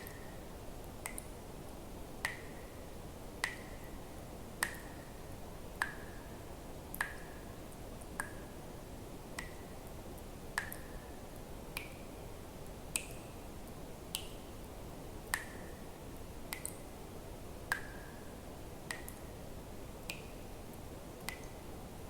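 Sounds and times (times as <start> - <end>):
faint steady hiss: 0.0 - 22.0
water drops plinking into water: 1.0 - 1.3, 2.2 - 2.7, 3.4 - 3.9, 4.6 - 5.0, 6.9 - 7.4, 8.2 - 8.5, 9.4 - 9.7, 10.6 - 11.0, 11.8 - 12.1, 12.9 - 13.2, 16.5 - 16.8, 17.7 - 18.2, 18.9 - 19.3, 20.1 - 20.4, 21.2 - 21.6.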